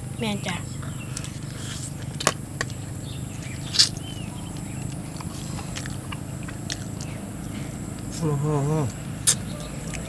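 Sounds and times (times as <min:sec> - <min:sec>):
people chewing with lip smacks: 0:00.8 - 0:08.1, 0:09.2 - 0:10.0.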